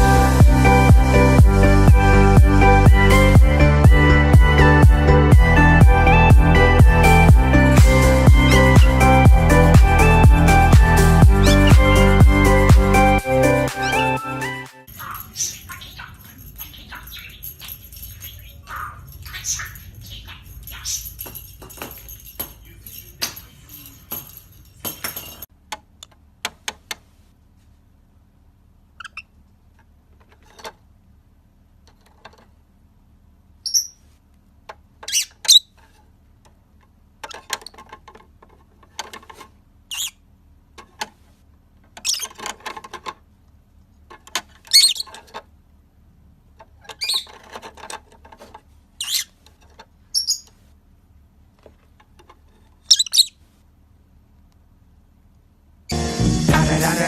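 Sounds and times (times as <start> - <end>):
music with jingling beat: 0.0 - 15.4, 20.5 - 25.5, 55.9 - 57.0
bird squawks and chirps: 11.3 - 12.1, 13.6 - 21.2, 29.0 - 29.3, 33.6 - 34.0, 35.0 - 35.7, 39.9 - 40.2, 42.0 - 42.4, 44.7 - 45.2, 47.0 - 47.4, 49.0 - 49.4, 50.1 - 50.5, 52.9 - 53.4.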